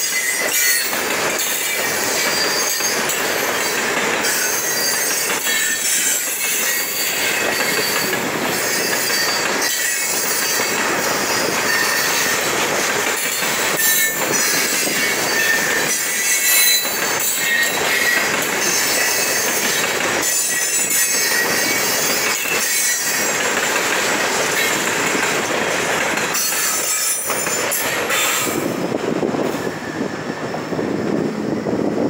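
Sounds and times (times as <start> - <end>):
high wheel squeal: 0.0 - 23.4, 26.3 - 28.7
freight cars rumbling on rails: 0.0 - 32.0.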